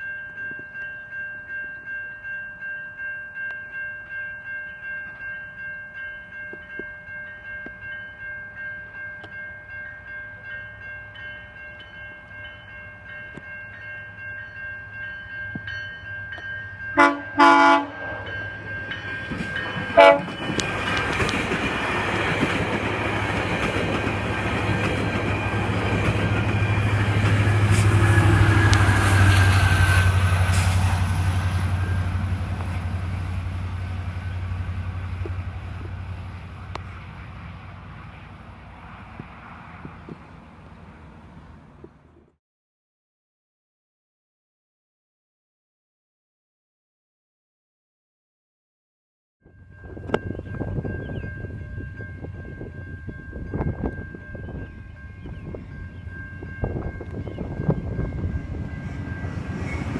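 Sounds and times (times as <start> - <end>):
locomotive engine and wheels: 0.0 - 42.4, 49.5 - 59.9
locomotive horn blasts: 17.0 - 18.5, 19.9 - 20.4.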